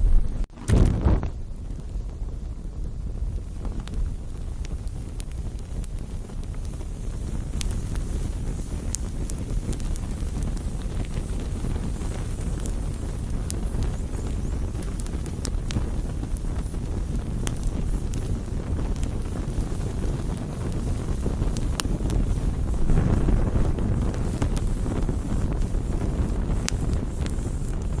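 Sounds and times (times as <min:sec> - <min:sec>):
steady low rumble: 0:00.0 - 0:08.4, 0:17.4 - 0:28.0
campfire crackling: 0:00.0 - 0:28.0.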